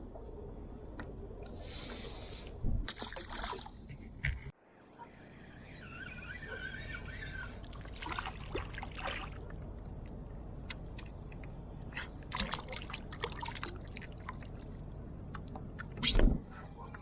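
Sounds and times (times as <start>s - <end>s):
steady low rumble: 0.0s - 2.9s, 7.4s - 17.0s
water splashing and trickling: 1.5s - 3.9s, 7.3s - 16.1s
small splashes and clicks: 7.6s - 14.7s.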